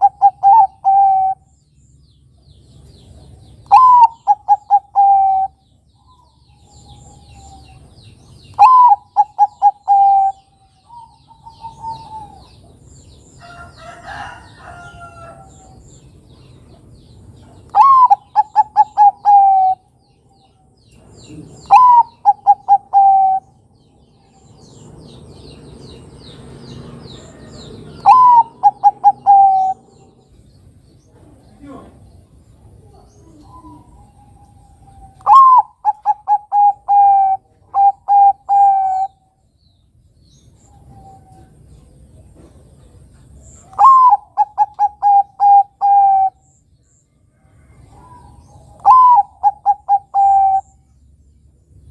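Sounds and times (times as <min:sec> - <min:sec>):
dove cooing: 0:00.0 - 0:01.5, 0:03.6 - 0:07.9, 0:08.5 - 0:12.8, 0:17.4 - 0:19.9, 0:21.2 - 0:23.6, 0:27.4 - 0:30.3, 0:32.8 - 0:39.3, 0:43.6 - 0:46.5, 0:47.8 - 0:50.8
faint bird chirps: 0:27.2 - 0:51.2.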